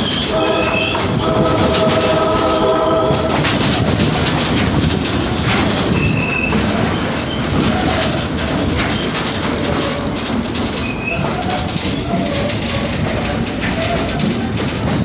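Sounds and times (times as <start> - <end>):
high squeals: 0.0 - 3.0
train wheels rumbling on rails: 0.0 - 15.0.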